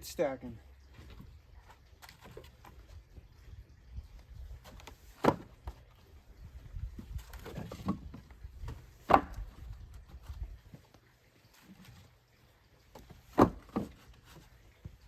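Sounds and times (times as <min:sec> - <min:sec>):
firewood clunking: 0:00.8 - 0:03.0, 0:04.4 - 0:06.1, 0:06.7 - 0:12.2, 0:12.8 - 0:15.0
soft wooden knocks: 0:04.6 - 0:05.8, 0:07.0 - 0:11.0, 0:12.9 - 0:15.0.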